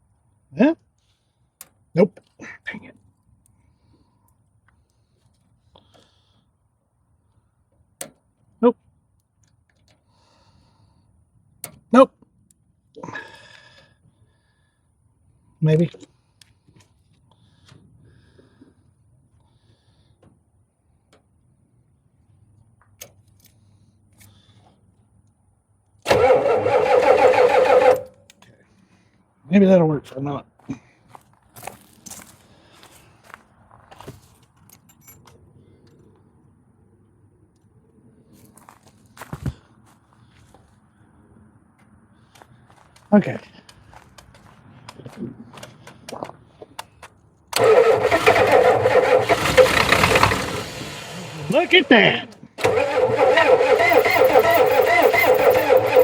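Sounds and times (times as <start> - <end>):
diesel truck engine cranking: 26.1 - 28.3, 47.5 - 56.0.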